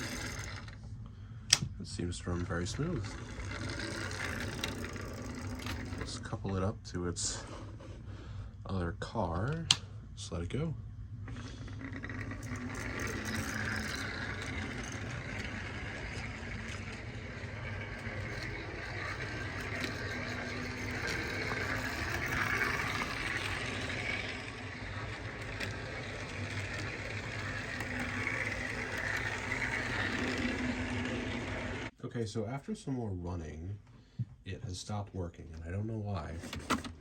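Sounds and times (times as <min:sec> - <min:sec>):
model train motor humming: 0:00.0 - 0:00.8, 0:02.1 - 0:06.4, 0:11.3 - 0:31.9.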